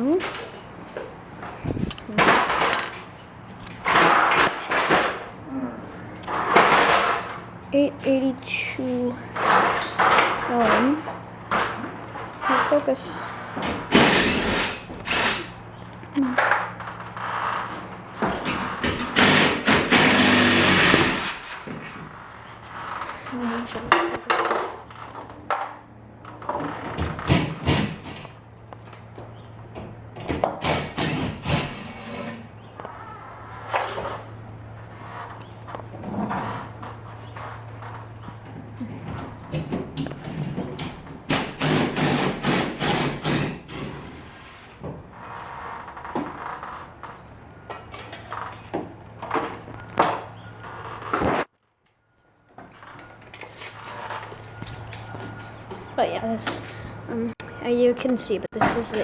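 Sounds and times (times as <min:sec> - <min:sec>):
objects knocking and clattering: 0:00.0 - 0:05.4, 0:15.9 - 0:28.4.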